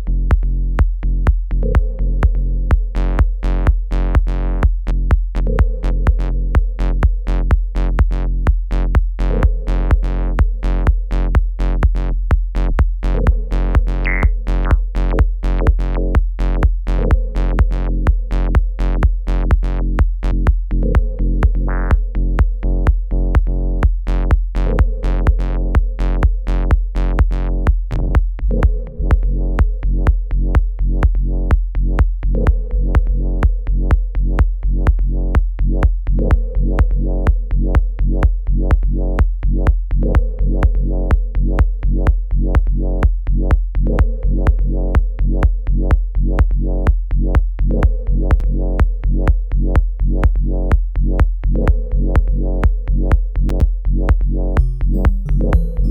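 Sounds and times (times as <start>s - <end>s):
drum machine beat: 0.0s - 38.4s, 45.0s - 55.9s
deep bass: 0.0s - 55.9s
synth chords: 13.2s - 14.8s, 20.9s - 22.0s, 28.4s - 29.8s, 54.6s - 55.9s
bright synth sounds: 54.6s - 55.9s.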